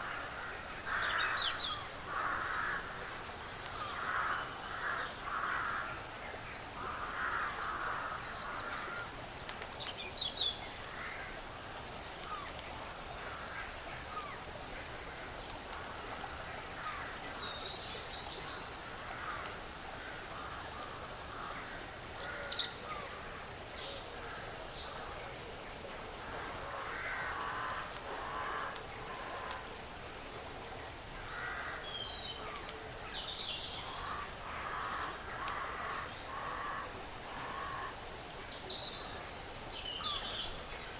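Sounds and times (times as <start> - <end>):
small clicks and rustles: 9.4 - 10.1, 11.6 - 12.9, 27.5 - 30.6.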